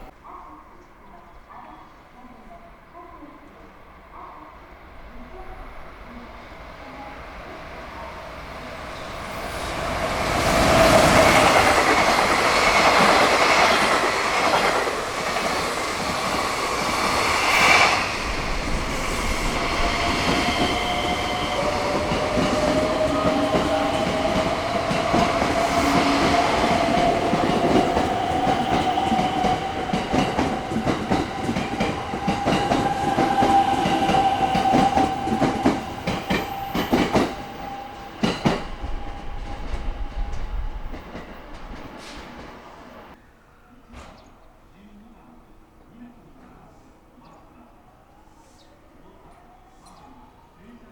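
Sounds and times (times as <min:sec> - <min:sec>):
freight train passing: 0:00.0 - 0:00.2, 0:02.7 - 0:43.3
train whine rising in pitch: 0:07.9 - 0:41.8.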